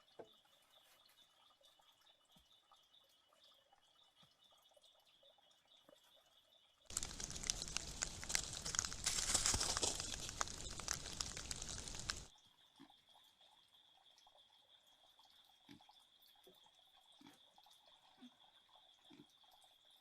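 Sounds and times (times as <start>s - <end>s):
loud rustling crackling noise: 6.9s - 12.3s.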